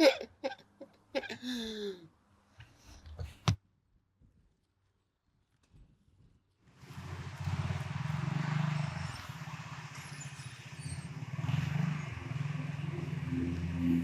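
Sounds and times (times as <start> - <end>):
go-kart engine running: 6.8 - 14.0.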